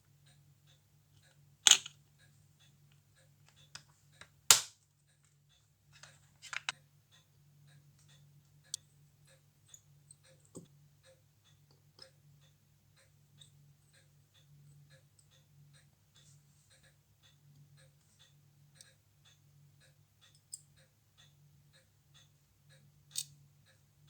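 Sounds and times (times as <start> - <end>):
metal tools clicking and tapping: 1.7 - 2.0, 6.0 - 6.8, 23.1 - 23.4.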